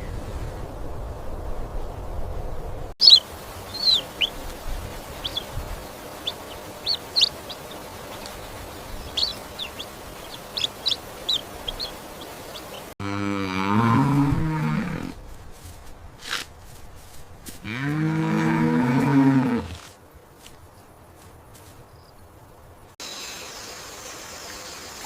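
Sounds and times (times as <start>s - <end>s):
birds chirping: 3.0s - 13.0s, 21.7s - 25.0s
cow mooing: 13.0s - 15.2s, 17.6s - 19.8s.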